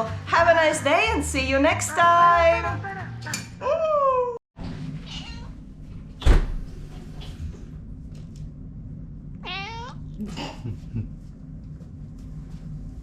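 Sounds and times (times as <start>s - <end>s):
cat meowing: 5.0s - 5.6s, 9.4s - 10.2s
thump: 6.2s - 6.7s.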